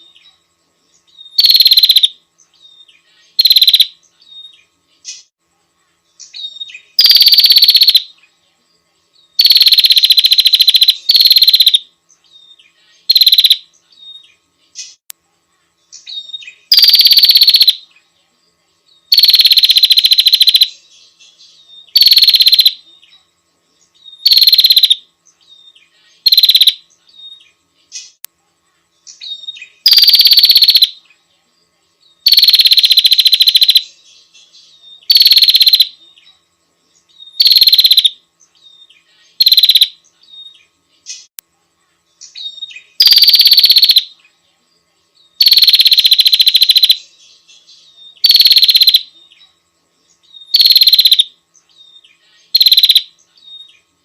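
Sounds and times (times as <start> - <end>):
bird rattling trill: 1.4 - 2.1, 3.4 - 3.9, 7.0 - 8.1, 9.4 - 11.8, 13.1 - 13.6, 16.7 - 17.8, 19.1 - 20.7, 22.0 - 22.8, 24.2 - 25.0, 26.2 - 26.8, 29.8 - 30.9, 32.3 - 33.9, 35.1 - 35.9, 37.4 - 38.1, 39.4 - 39.9, 43.0 - 44.1, 45.4 - 47.0, 48.2 - 49.0, 50.5 - 51.3, 52.5 - 53.1.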